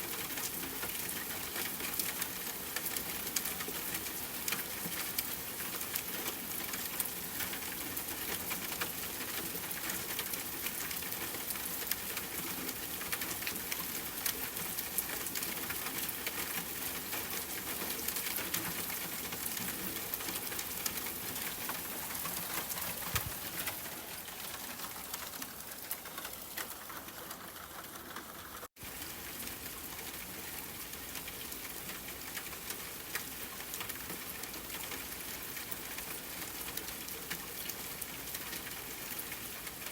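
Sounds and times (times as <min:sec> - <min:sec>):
steady rainfall: 0:00.0 - 0:39.9
fireplace fire crackling: 0:20.5 - 0:29.1.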